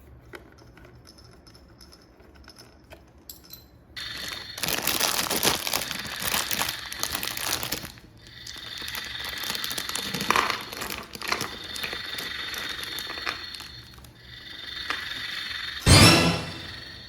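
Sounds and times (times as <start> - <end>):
packaging crinkling and rustling: 4.0 - 14.1.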